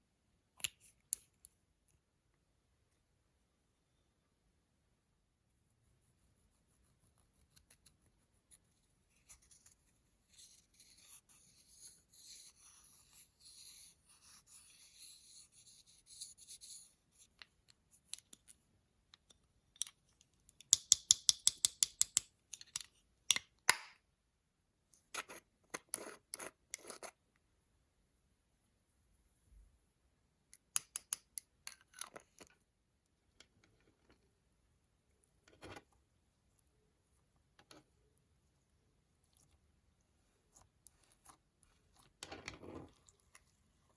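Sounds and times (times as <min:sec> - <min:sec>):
soft fine scratching: 0:05.6 - 0:18.1, 0:35.2 - 0:43.9.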